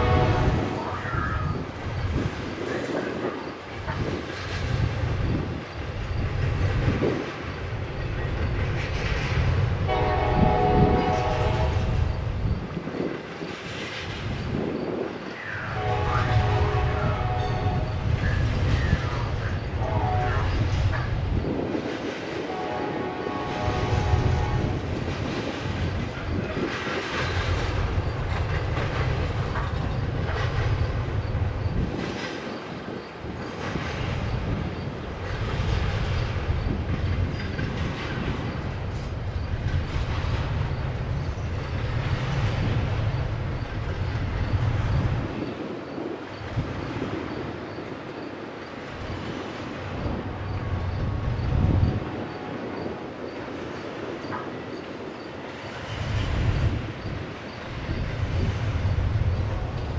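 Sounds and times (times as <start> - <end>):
steel wheels rumbling on rail: 0.0 - 59.9
wheels clacking over track joints: 1.7 - 10.0, 20.4 - 59.9.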